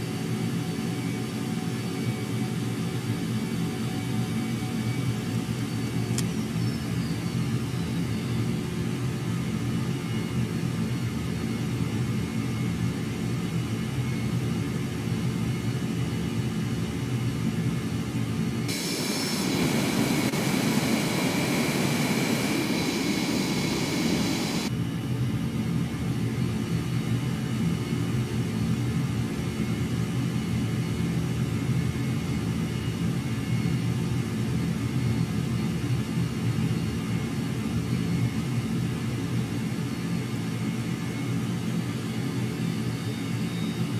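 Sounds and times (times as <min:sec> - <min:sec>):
jet engine rumble: 0:08.4 - 0:43.9
loud high hiss: 0:18.7 - 0:24.7.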